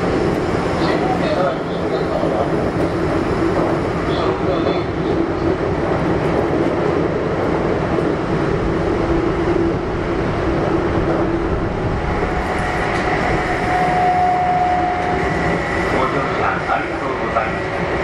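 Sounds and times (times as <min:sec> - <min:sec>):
train wheels rumbling on rail: 0:00.0 - 0:18.0
high whine: 0:11.4 - 0:17.8.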